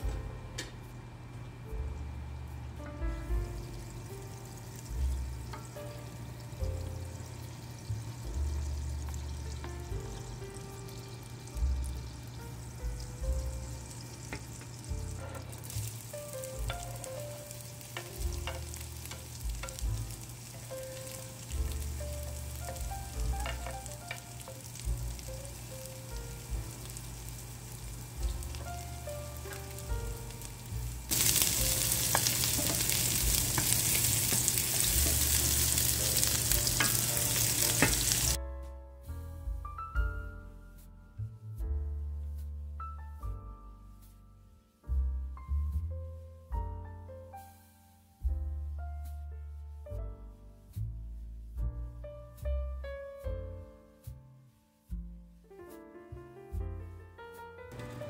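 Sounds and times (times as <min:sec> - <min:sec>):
onion and garlic sizzling in a pan: 0:01.8 - 0:38.4, 0:57.7 - 0:58.0.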